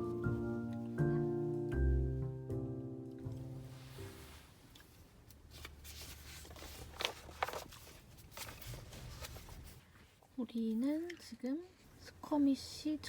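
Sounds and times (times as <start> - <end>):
piano tune: 0.0 - 4.5
soft handling clicks and rustles: 4.6 - 12.0.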